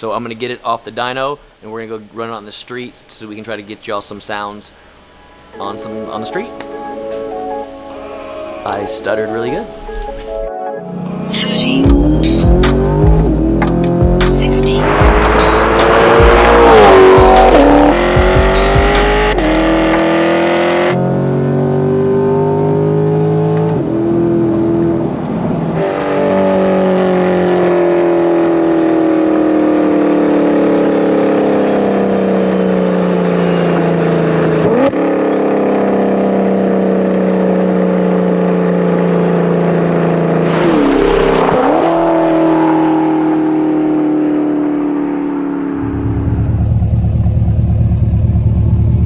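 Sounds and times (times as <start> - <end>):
car engine revving: 10.9 - 25.0, 36.6 - 49.0.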